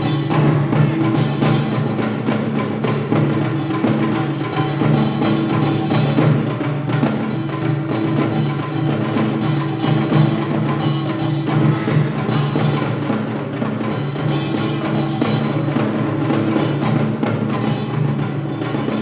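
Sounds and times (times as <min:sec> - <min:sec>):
bright metallic washes: 0:00.0 - 0:19.0
drums struck in rhythm: 0:00.0 - 0:19.0.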